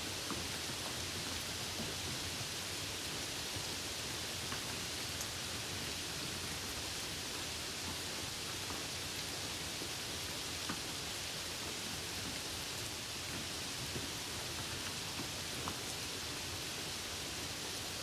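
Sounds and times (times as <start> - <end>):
faint ticks of raindrops: 0.1 - 18.0.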